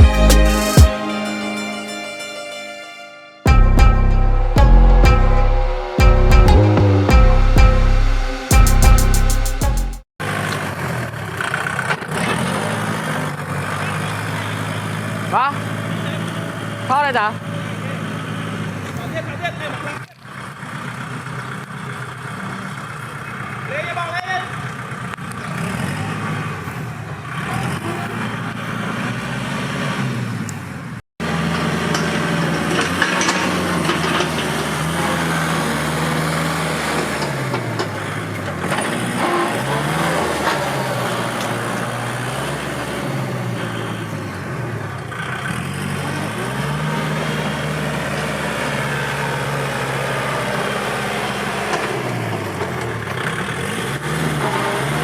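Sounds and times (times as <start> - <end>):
tractor diesel engine running hard: 31.2 - 55.0.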